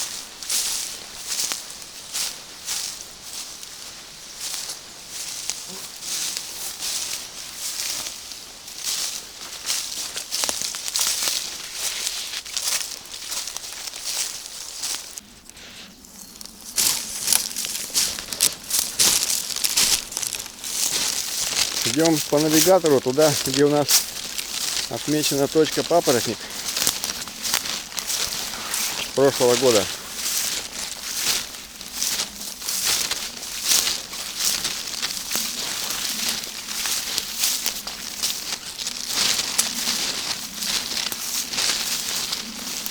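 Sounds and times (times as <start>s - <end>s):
footsteps rustling through undergrowth: 0.0s - 42.9s
twig snapping: 15.0s - 21.9s.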